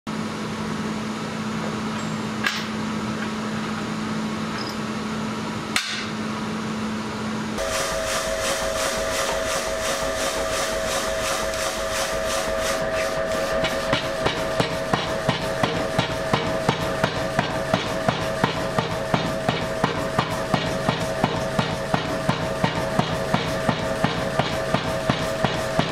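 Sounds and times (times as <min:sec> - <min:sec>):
steady hum: 0:05.0 - 0:22.4.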